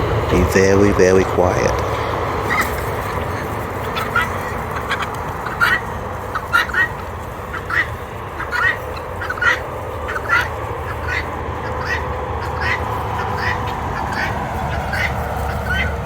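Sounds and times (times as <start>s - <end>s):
poultry calling: 0.0s - 16.0s
steady background hum: 0.0s - 16.0s.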